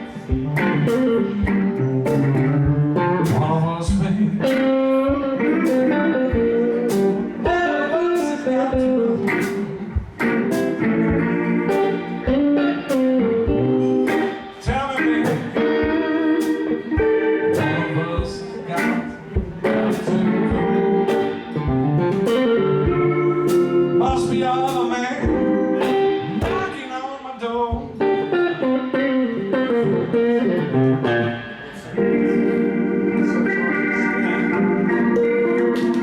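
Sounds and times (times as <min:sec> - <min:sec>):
electric blues band playing: 0:00.0 - 0:36.0
electric guitar: 0:00.0 - 0:36.0
steady drum beat: 0:00.2 - 0:26.8, 0:27.7 - 0:28.0.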